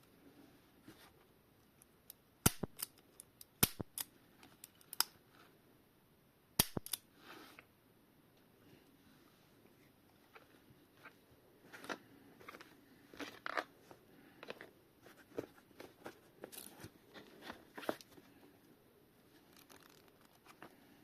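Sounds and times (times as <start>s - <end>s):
packaging crinkling: 19.4s - 20.8s.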